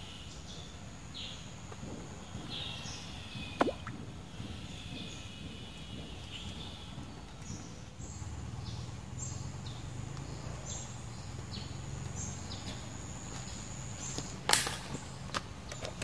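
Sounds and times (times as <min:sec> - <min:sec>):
sharp knock: 0:03.6 - 0:04.1.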